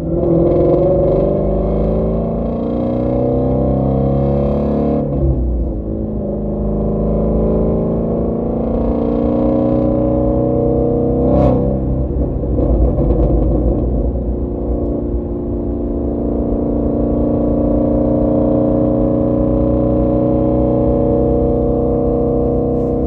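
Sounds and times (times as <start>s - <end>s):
car engine droning: 0.0s - 23.0s
exhaust crackling: 21.4s - 23.0s.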